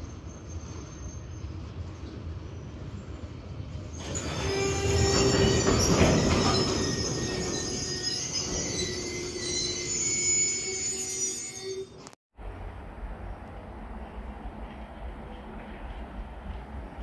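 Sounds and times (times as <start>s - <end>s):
high squealing wheels: 0.0s - 12.1s
train wheels rumbling over rails: 0.3s - 9.6s, 12.4s - 17.0s.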